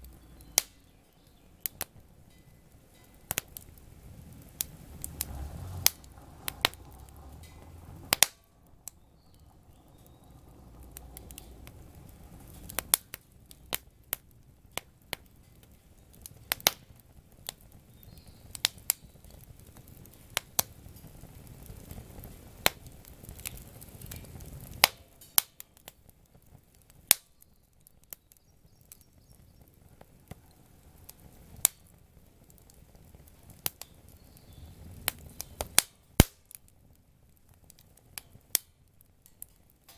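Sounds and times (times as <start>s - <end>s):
low uneven rumble: 0.0s - 14.8s
campfire crackling and popping: 0.0s - 39.9s.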